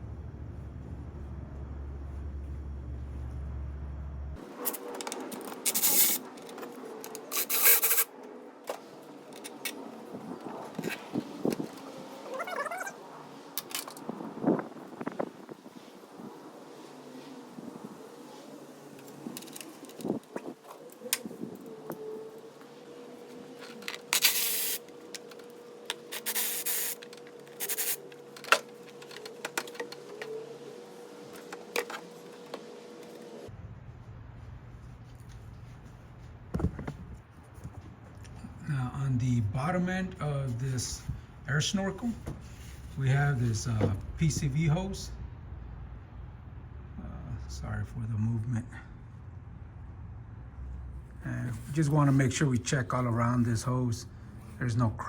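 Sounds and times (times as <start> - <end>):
faint steady hum: 0.0 - 11.8
ratchet wrench ratcheting: 26.1 - 27.0.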